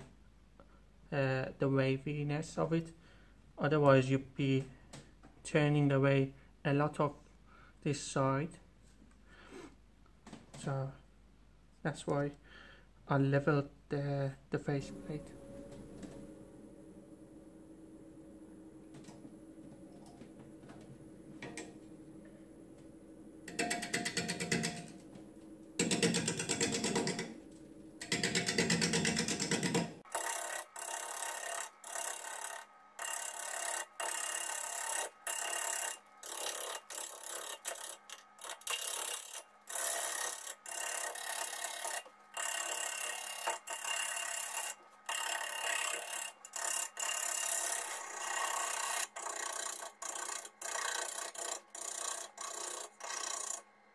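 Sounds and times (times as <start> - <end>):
lathe gouge cutting wood: 14.7 - 53.6.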